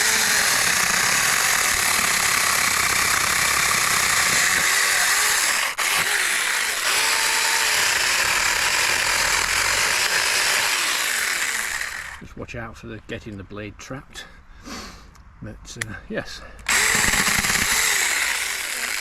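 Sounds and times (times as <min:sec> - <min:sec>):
mini chainsaw cutting branch: 0:00.0 - 0:12.2, 0:16.7 - 0:19.0.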